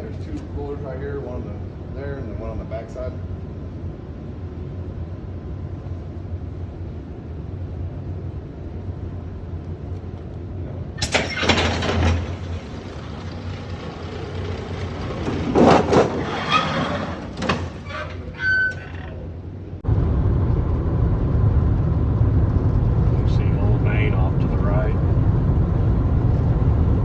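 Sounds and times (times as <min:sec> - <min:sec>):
machinery humming: 0:10.6 - 0:27.0.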